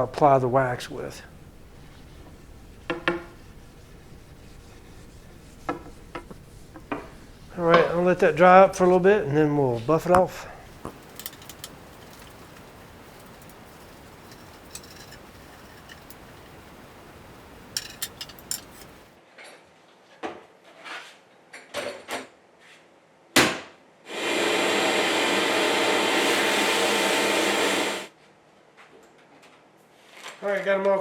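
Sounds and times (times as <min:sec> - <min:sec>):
sandblasting air rushing: 0:00.0 - 0:19.1, 0:24.1 - 0:28.1
metal parts clicking and knocking: 0:10.9 - 0:12.7, 0:14.2 - 0:19.1
motor hum: 0:24.1 - 0:28.1.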